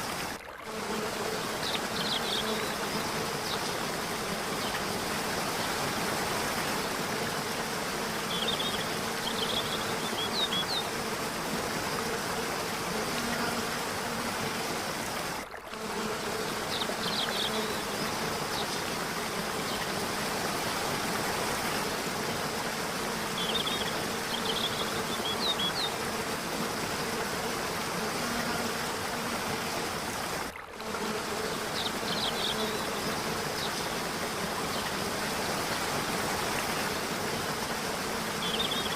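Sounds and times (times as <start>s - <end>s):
falling water rushing: 16.4s - 30.6s.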